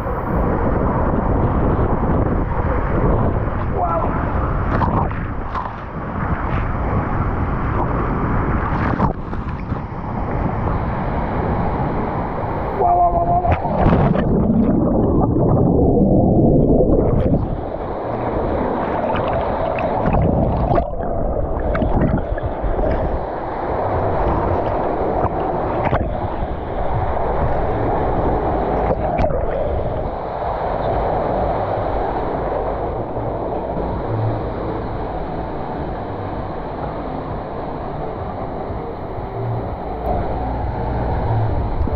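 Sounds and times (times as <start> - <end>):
water rushing down waterslide: 0.0 - 37.4.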